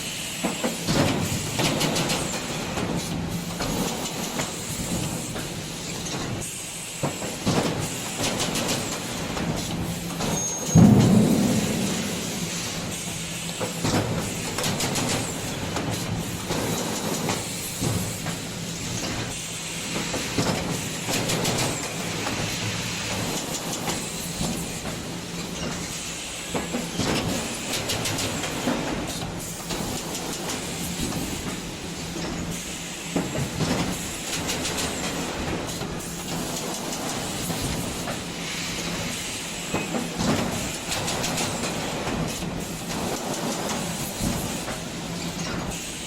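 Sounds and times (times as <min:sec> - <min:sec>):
machinery hum and hiss: 0:00.0 - 0:46.0.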